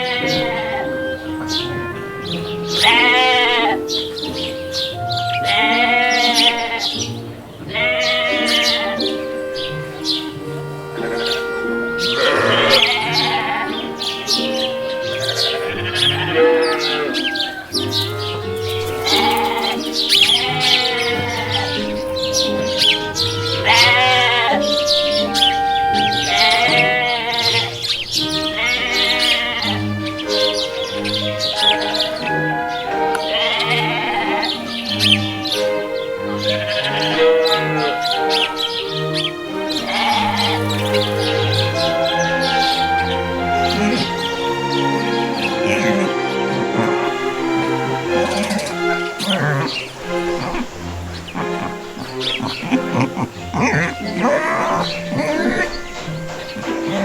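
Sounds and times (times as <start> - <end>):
sheep bleating: 0.0 - 1.0, 2.8 - 3.8, 5.4 - 7.0, 7.7 - 9.1, 12.1 - 14.6, 15.2 - 17.7, 18.8 - 30.1, 31.8 - 38.3, 39.6 - 57.0
background music: 0.0 - 57.0.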